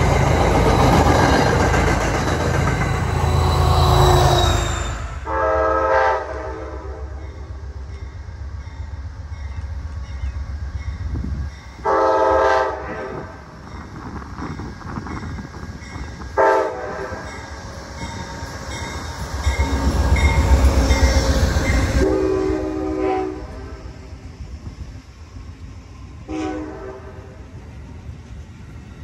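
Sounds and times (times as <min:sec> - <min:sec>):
train rumbling past: 0:00.0 - 0:29.0
locomotive horn blasts: 0:03.5 - 0:07.4, 0:11.8 - 0:13.4, 0:16.4 - 0:17.2, 0:22.0 - 0:24.0, 0:26.3 - 0:27.4.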